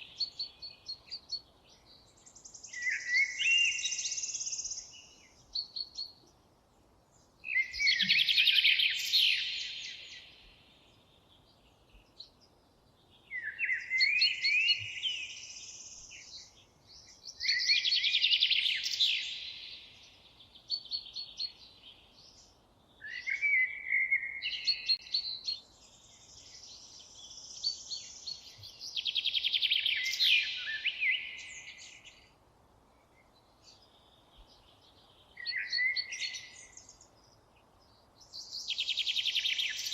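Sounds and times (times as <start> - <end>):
songbird trilling song: 0.0 - 6.4, 7.1 - 39.9
faint steady hiss: 0.0 - 39.9.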